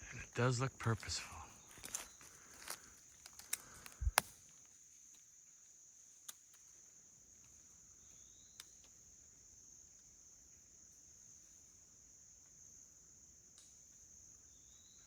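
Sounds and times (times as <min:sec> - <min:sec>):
insects droning: 0:00.0 - 0:15.0
footstep with sharp snap: 0:01.7 - 0:05.2
faint clicks: 0:01.8 - 0:05.2.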